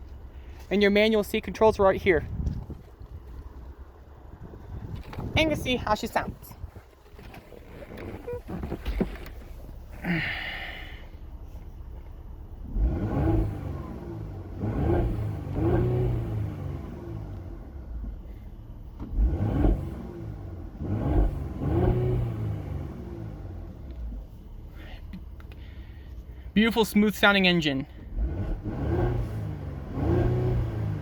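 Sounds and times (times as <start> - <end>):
car engine revving: 12.6 - 18.0, 19.0 - 24.2, 28.0 - 31.0.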